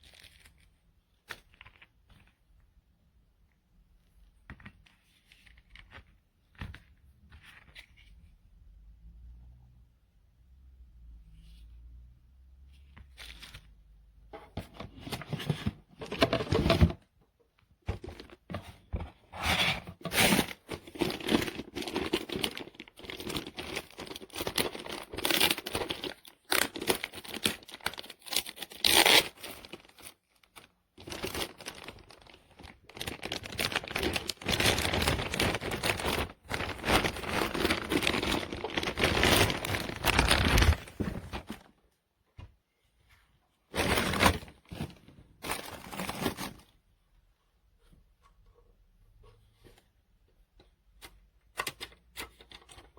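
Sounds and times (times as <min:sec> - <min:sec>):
packaging crinkling and tearing: 0:20.0 - 0:41.6.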